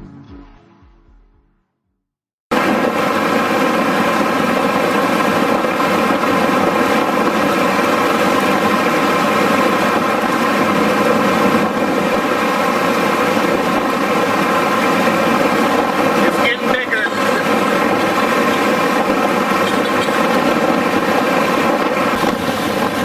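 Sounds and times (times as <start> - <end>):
loud mechanical drone: 2.5 - 23.0.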